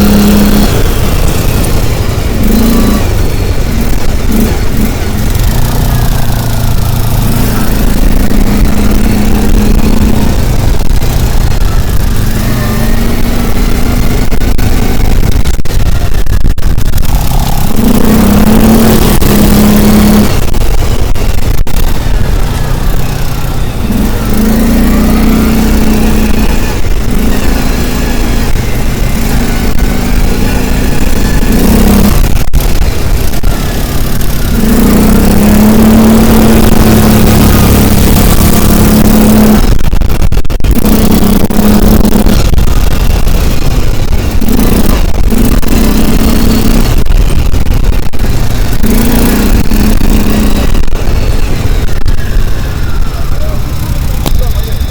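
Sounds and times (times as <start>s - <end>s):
road and wind rumble: 0.0s - 54.9s
vehicle engine running: 0.0s - 54.9s.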